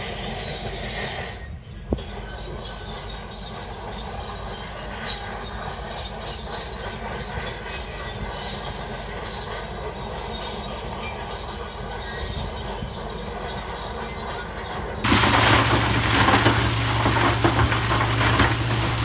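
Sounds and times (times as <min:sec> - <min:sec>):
steel tracks clanking and squealing: 0:00.0 - 0:19.0
diesel engine running: 0:15.0 - 0:19.0.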